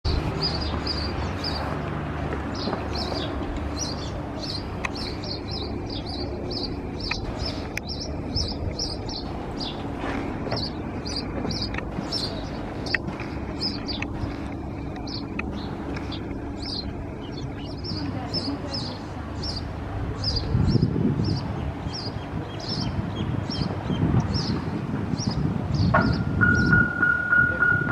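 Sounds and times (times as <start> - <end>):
low background rumble: 0.1 - 26.8
bird chirping: 2.5 - 24.6.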